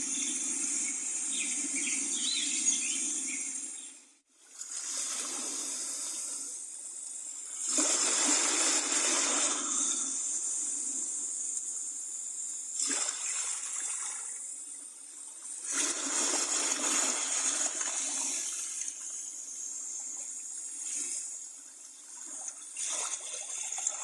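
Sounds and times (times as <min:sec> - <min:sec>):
rushing splashing water: 0:07.6 - 0:10.9, 0:12.8 - 0:14.6, 0:15.5 - 0:19.0.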